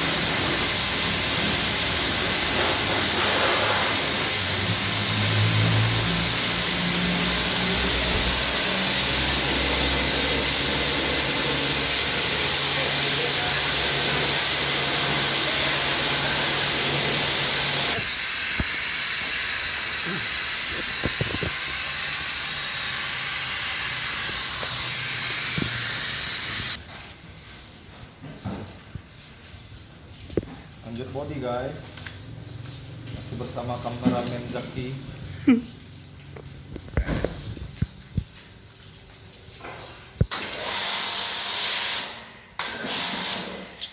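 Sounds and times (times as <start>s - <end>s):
pressure washer jet spraying water: 0.0s - 26.8s, 40.2s - 43.7s
pump motor hum: 0.0s - 26.8s.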